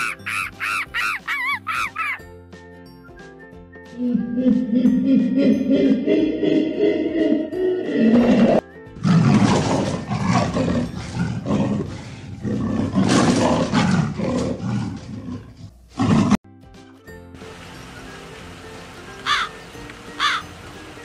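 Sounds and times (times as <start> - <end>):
background music: 0.0 - 21.0
big cat growling roar: 7.8 - 16.4.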